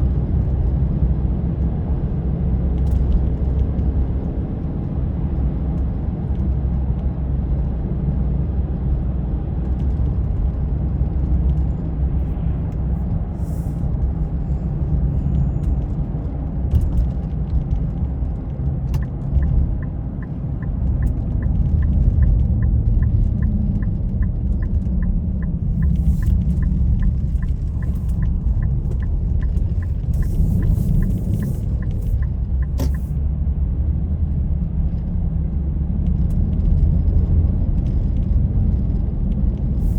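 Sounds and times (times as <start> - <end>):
car driving rumble: 0.0 - 39.9
light regular ticking: 19.0 - 33.2.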